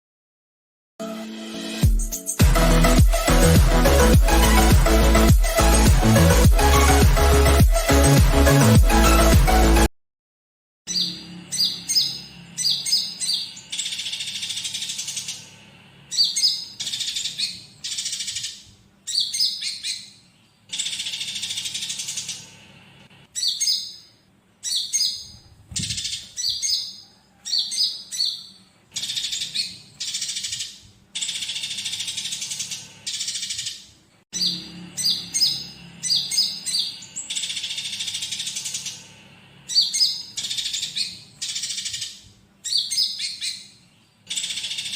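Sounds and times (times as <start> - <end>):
songbird singing: 10.9 - 22.5, 23.3 - 44.9
harsh bird chattering: 16.1 - 22.5, 23.3 - 39.1, 39.7 - 44.9.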